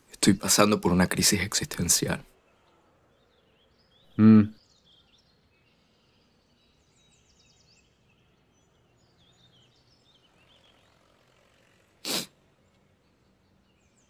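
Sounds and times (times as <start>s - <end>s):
faint birds chirping: 0.0s - 14.0s.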